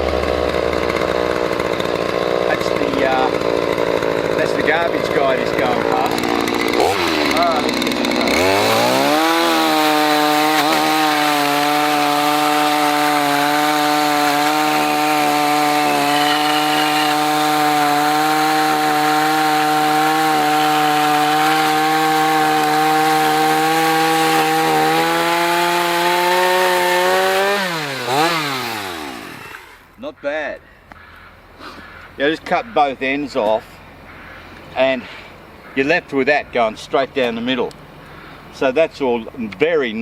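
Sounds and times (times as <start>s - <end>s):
chainsaw cutting through log: 0.0s - 30.0s.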